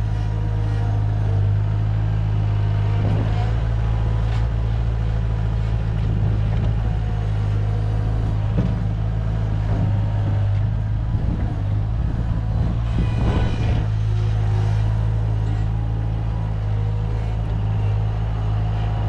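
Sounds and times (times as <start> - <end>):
loader engine running: 0.0 - 19.0.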